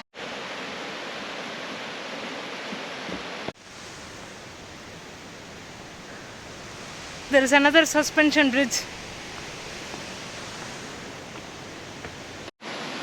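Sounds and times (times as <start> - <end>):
waterfall rushing: 3.6 - 13.0.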